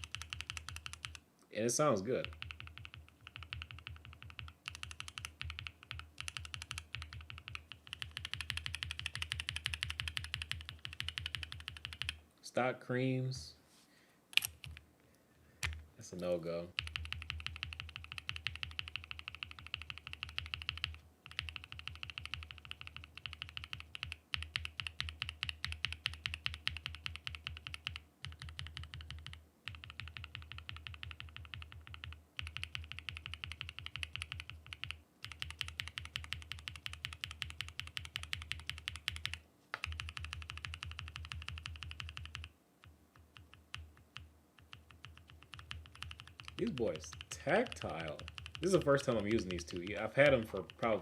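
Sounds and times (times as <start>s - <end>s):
mechanical keyboard typing: 0.0s - 1.2s, 2.1s - 12.2s, 14.4s - 14.8s, 16.7s - 42.5s, 43.1s - 51.0s.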